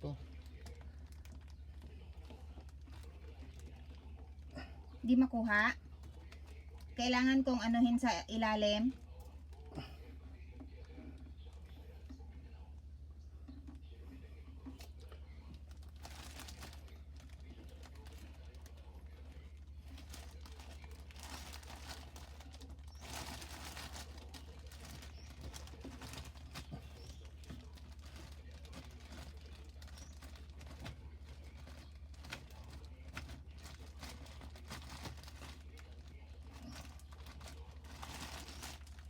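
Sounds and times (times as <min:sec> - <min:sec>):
rustling and scraping: 0:09.0 - 0:39.0.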